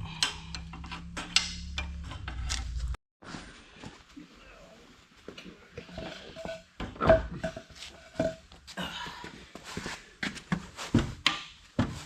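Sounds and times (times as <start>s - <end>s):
metal clanks and knocks: 0.0s - 3.0s, 5.8s - 8.5s.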